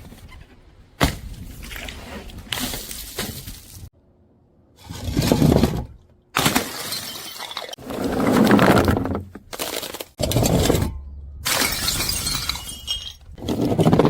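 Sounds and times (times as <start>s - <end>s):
glass bottles shattering: 6.4s - 7.8s, 10.8s - 13.4s.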